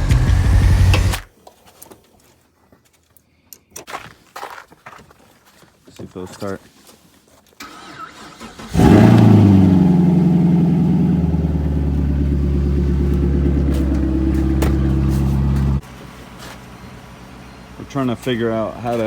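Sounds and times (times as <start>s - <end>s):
car engine starting and idling: 0.0s - 1.2s, 7.6s - 19.0s.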